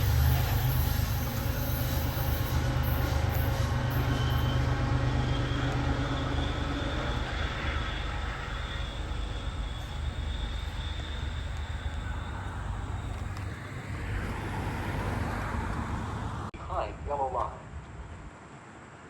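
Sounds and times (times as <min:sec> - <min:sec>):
thin high whine: 0:00.0 - 0:14.4
train rumbling past: 0:00.0 - 0:16.7.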